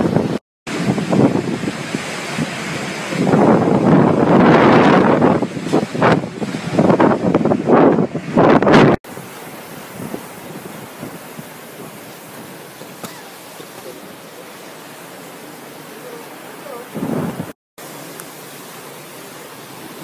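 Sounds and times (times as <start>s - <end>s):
wind gust on microphone: 0.0s - 12.7s, 16.3s - 17.6s
hurricane wind and rain hiss: 0.0s - 20.0s.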